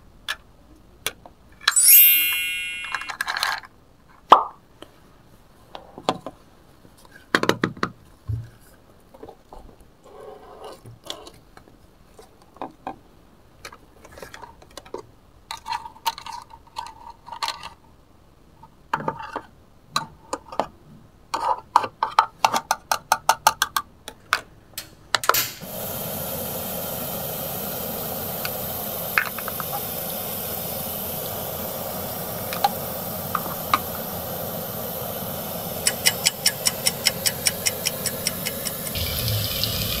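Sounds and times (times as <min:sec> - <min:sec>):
plastic toy pieces clattering: 0:02.9 - 0:03.7
frying sizzle: 0:25.6 - 0:40.0.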